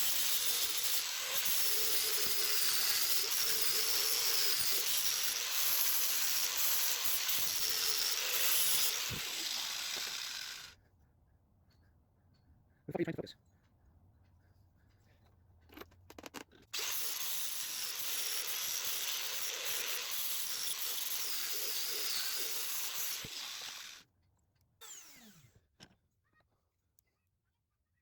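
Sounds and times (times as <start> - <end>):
angle grinder grinding steel: 0.0 - 10.7, 16.8 - 24.0, 24.8 - 25.5.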